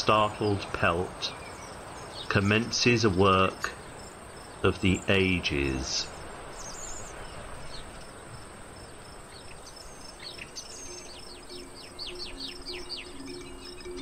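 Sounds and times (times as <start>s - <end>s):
steady hiss: 0.0s - 14.0s
bird singing high chirps: 0.1s - 8.2s, 8.8s - 14.0s
soft sustained music notes: 9.4s - 14.0s.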